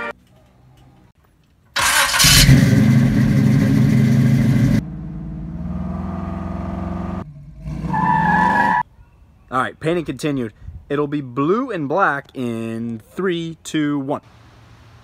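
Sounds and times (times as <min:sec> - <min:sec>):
vehicle engine running: 0:01.8 - 0:07.7.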